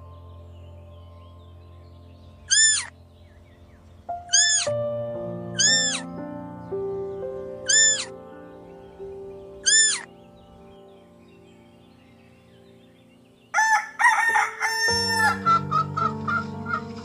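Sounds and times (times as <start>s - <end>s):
background music: 0.0s - 17.0s
cat meowing: 2.5s - 2.9s, 4.3s - 4.7s, 5.6s - 6.1s, 7.7s - 8.1s, 9.6s - 10.1s.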